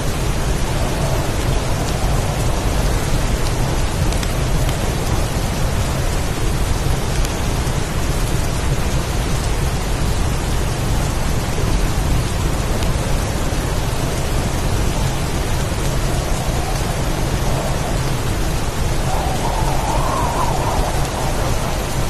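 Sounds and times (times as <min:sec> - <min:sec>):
heavy rain falling: 0:00.0 - 0:22.0
low rumble: 0:14.2 - 0:22.0.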